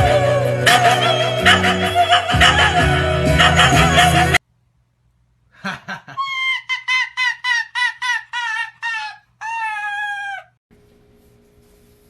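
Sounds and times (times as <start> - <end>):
background music: 0.0 - 4.4
animal high-pitched calls: 6.2 - 10.6.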